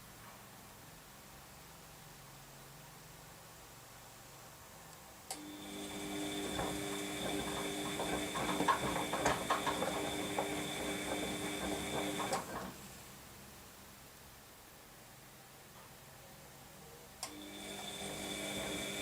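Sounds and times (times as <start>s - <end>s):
washing machine motor whine: 5.4s - 12.8s, 17.3s - 19.0s
washing machine click: 6.2s - 12.8s
load tumbling clunks and rattles: 6.5s - 12.8s.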